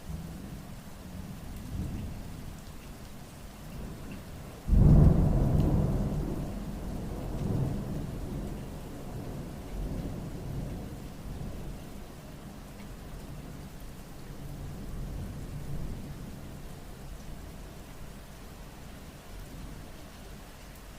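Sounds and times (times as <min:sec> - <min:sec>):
steady rain: 0:00.0 - 0:20.9
thunder crack and rumble: 0:04.7 - 0:11.6.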